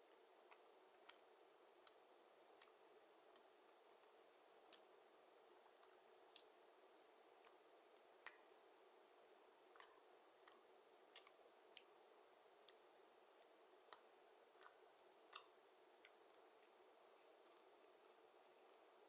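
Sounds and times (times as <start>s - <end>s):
low steady hiss: 0.0s - 19.0s
person chewing with mouth clicks: 9.8s - 11.9s, 12.6s - 12.8s.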